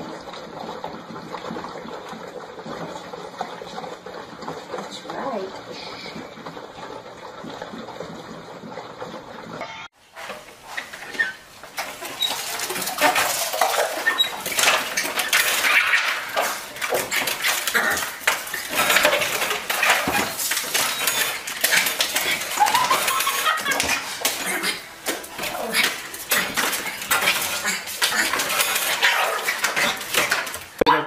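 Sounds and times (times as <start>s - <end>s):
puppies jumping against door: 10.8s - 30.8s
puppies yelping: 12.1s - 30.2s.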